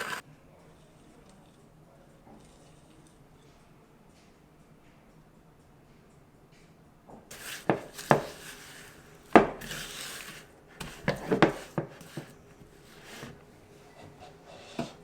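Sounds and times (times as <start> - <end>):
kitchenware clicks and knocks: 7.3 - 13.4
kitchenware scraping: 7.3 - 15.0.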